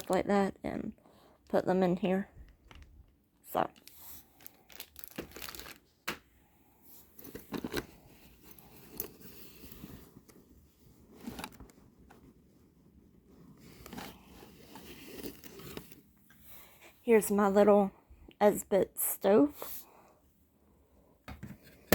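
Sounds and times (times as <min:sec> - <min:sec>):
packaging rustling: 0:02.4 - 0:06.1, 0:13.6 - 0:16.0.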